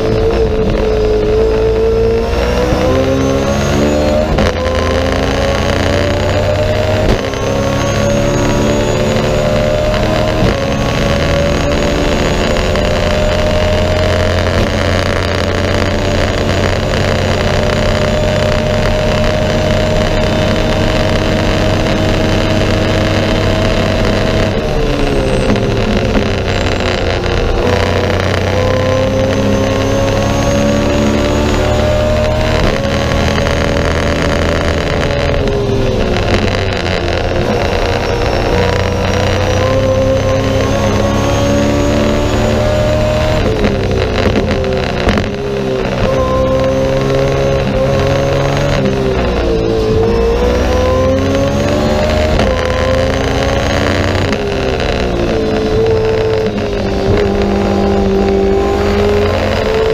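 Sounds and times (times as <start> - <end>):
race car engine at high revs: 0.0 - 59.9.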